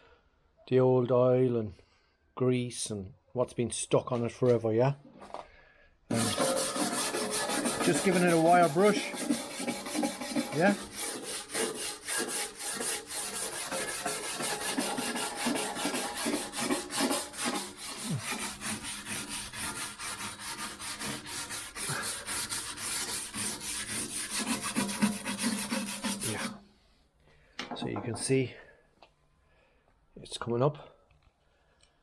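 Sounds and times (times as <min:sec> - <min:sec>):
wire brush scrubbing metal: 0:06.1 - 0:26.6.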